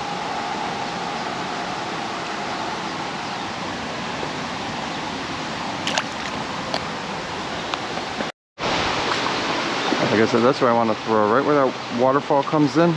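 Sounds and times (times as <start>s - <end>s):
creek water rushing over rocks: 5.8s - 10.7s.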